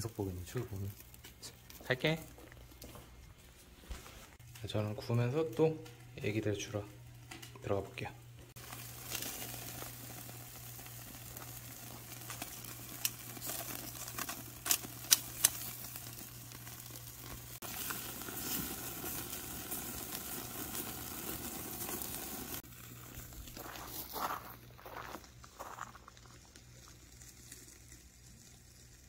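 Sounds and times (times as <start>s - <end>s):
ribs sizzling on a grill: 0.0s - 2.4s, 4.6s - 29.0s
sharp clicks and pops: 11.0s - 16.2s.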